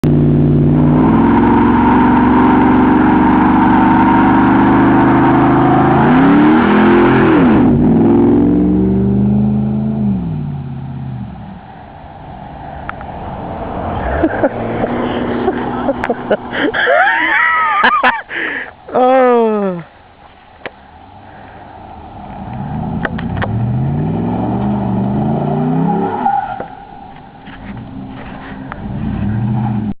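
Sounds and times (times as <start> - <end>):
truck engine revving: 0.0 - 18.1, 21.1 - 30.0
tires spinning and squealing: 0.6 - 9.5, 11.4 - 17.9, 21.2 - 29.9
tyres spinning and squealing: 24.4 - 29.9.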